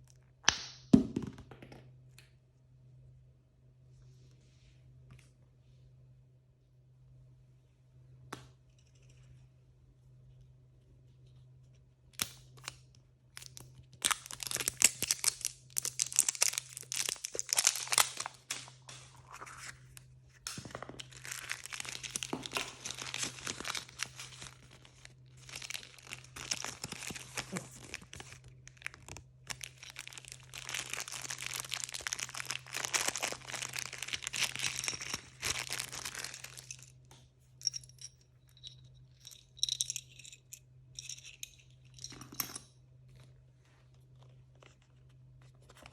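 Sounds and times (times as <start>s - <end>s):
packaging crinkling and tearing: 13.4s - 19.7s, 20.6s - 36.9s.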